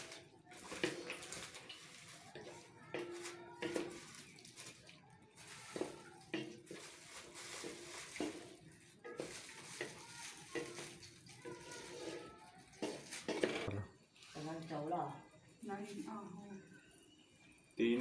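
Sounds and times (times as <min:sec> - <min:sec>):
metal spoon scraping a pot: 0:00.0 - 0:04.8, 0:05.4 - 0:13.7
faint sizzle: 0:00.0 - 0:18.0.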